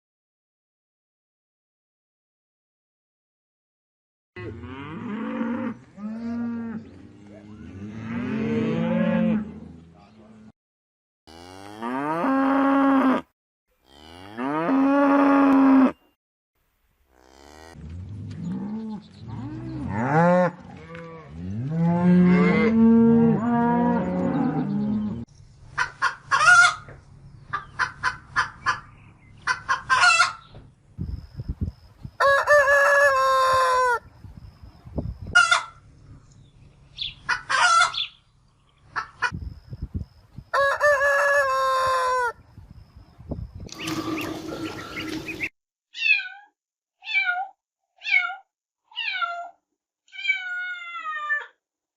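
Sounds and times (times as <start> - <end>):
cow mooing: 4.4 - 10.5, 11.3 - 16.0, 17.1 - 25.2
chickens clucking: 25.7 - 30.6, 35.3 - 35.8, 37.0 - 38.2, 38.9 - 39.4, 43.7 - 45.5
rooster crowing: 32.2 - 34.0, 40.6 - 42.4.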